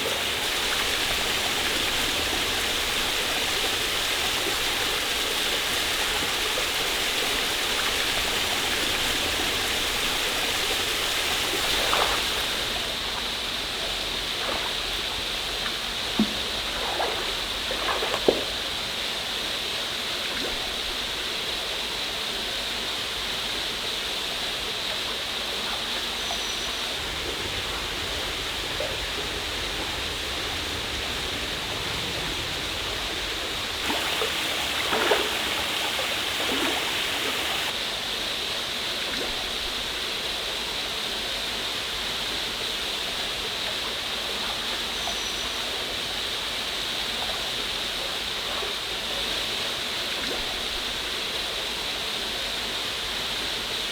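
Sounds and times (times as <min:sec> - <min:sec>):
waterfall rushing: 0:00.0 - 0:13.6, 0:26.7 - 0:37.8.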